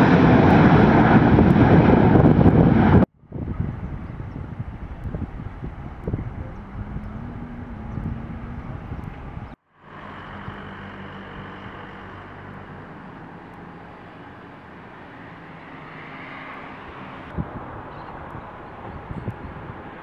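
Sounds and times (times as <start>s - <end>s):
aircraft engines running: 0.0s - 20.0s
low hum: 2.8s - 14.2s.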